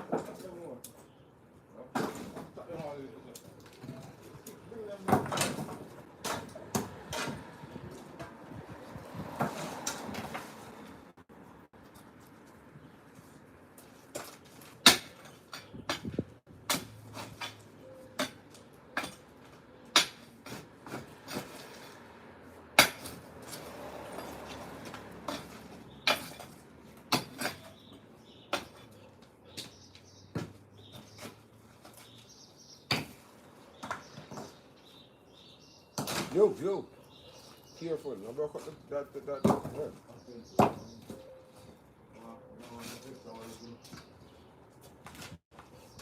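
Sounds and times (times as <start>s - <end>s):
hand tools striking concrete: 14.1s - 22.0s, 22.7s - 27.9s, 32.8s - 34.5s.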